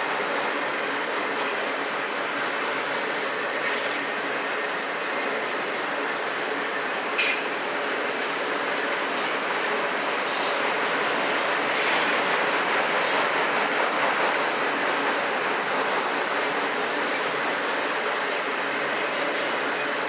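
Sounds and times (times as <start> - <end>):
freight train wheels on rail: 0.0 - 20.0
high wheel squeal: 2.9 - 4.0.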